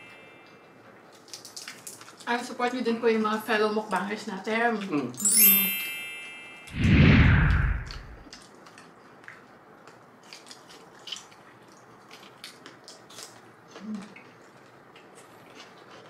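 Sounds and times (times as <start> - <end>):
faint chewing crunches: 0.6 - 2.5, 8.3 - 16.0.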